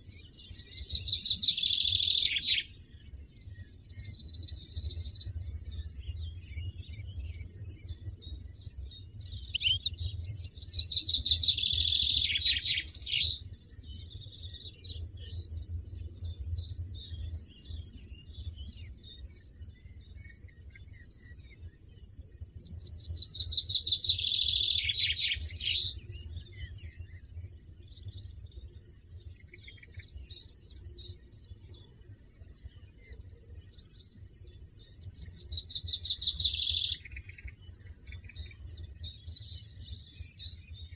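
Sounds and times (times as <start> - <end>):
bird twittering: 9.3 - 13.4, 22.8 - 26.0, 35.1 - 38.7.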